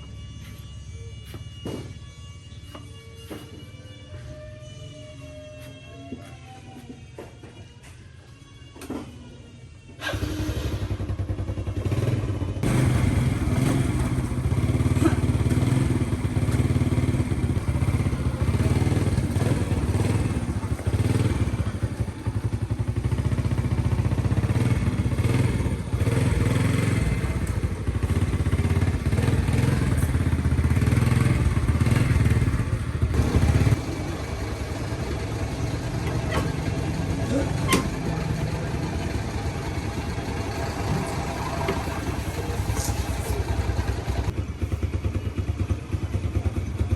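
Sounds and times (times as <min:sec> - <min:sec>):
vehicle engine running: 0:10.0 - 0:46.9.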